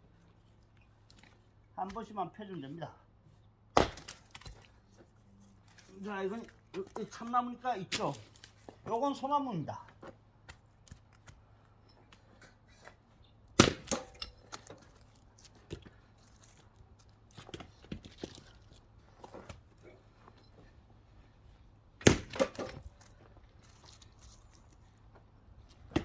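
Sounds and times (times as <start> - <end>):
wooden knocks of logs handled: 3.7 - 5.1, 17.2 - 20.0, 22.0 - 24.1, 25.1 - 26.0
axe striking wood: 3.8 - 4.7, 13.6 - 14.7, 22.0 - 22.8
split pieces knocking down: 13.6 - 14.2, 22.0 - 22.8.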